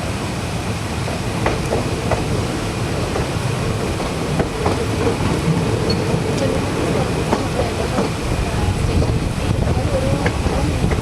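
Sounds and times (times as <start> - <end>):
passenger train rumbling on track: 0.0 - 11.0
wheel clicks over rail joints: 1.4 - 8.2.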